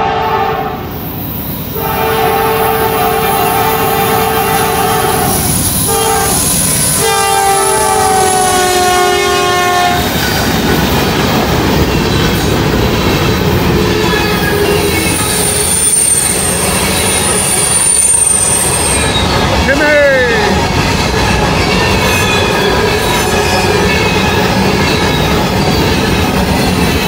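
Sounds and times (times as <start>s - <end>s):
locomotive air horn: 0.0s - 0.9s, 1.8s - 10.1s
freight train rumbling past: 0.0s - 27.0s
high thin wheel squeal: 13.9s - 19.6s, 21.4s - 26.4s.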